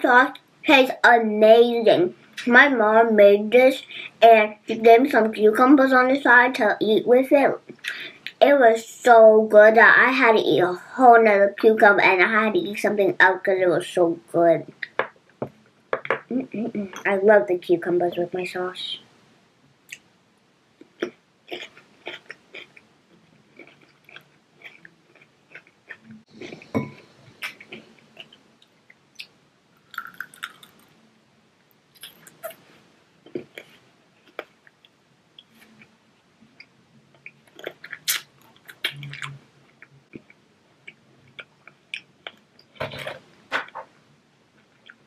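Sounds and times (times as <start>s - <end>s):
child chewing and lip-smacking: 20.8s - 30.9s, 33.2s - 35.9s, 36.5s - 42.8s.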